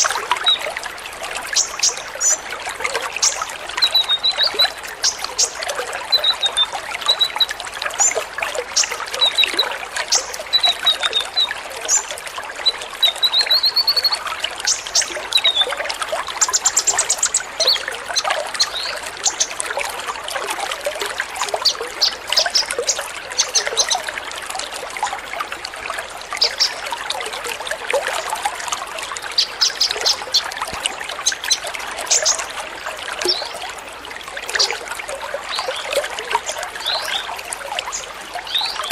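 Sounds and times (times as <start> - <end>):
trickling water: 0.0 - 38.9
birds chirping: 37.9 - 38.9.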